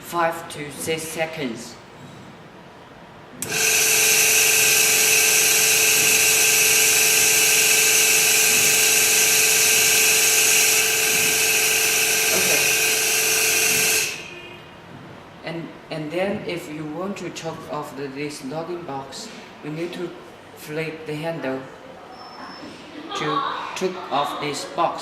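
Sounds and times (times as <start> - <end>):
small motor whining: 3.4 - 14.6.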